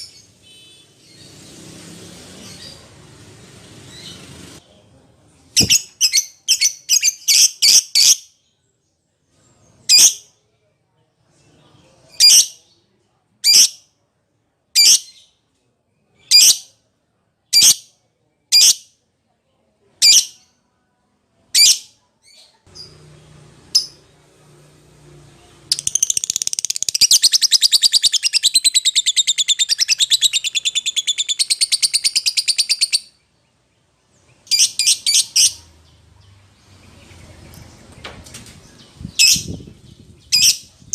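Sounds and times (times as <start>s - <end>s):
lovebird chirping: 5.6s - 8.3s, 25.5s - 33.6s, 34.2s - 37.9s, 38.8s - 40.9s.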